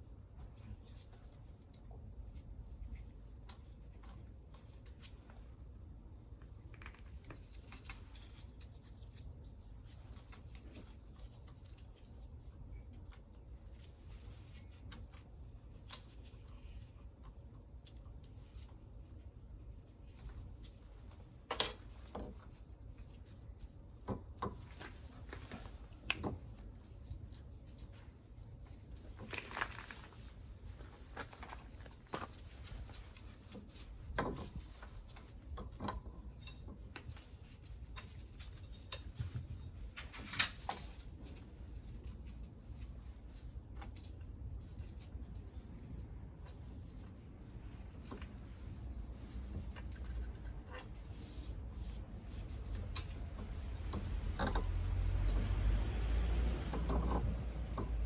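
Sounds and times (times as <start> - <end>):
low room rumble: 0.0 - 58.0.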